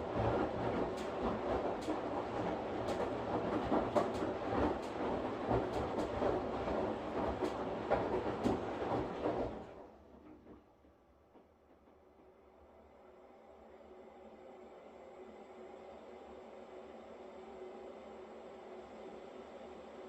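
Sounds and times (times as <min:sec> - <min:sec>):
washing machine churning: 0:00.0 - 0:09.9.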